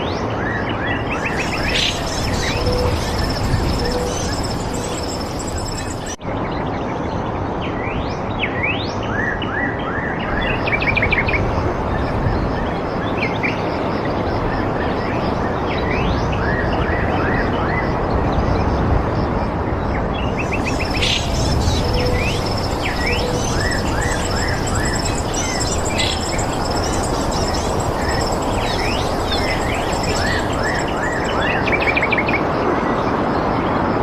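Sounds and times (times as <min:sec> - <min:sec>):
birds chirping: 0:01.1 - 0:06.2, 0:20.4 - 0:32.2
steady rushing noise: 0:01.1 - 0:06.2, 0:20.3 - 0:32.8.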